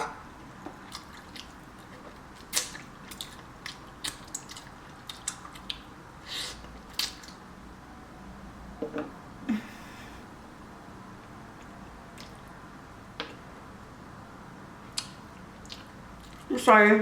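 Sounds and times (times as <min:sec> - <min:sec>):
person chewing wetly: 0:00.7 - 0:05.9, 0:11.6 - 0:12.6, 0:14.9 - 0:16.5.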